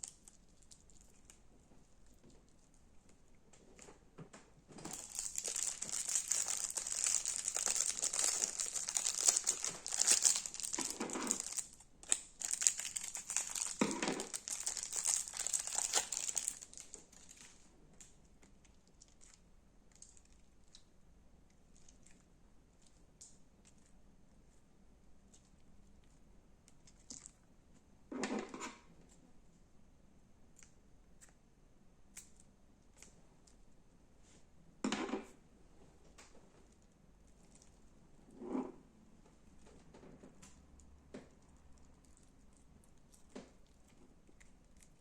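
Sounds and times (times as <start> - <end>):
crunchy slime crackling: 4.9 - 17.6.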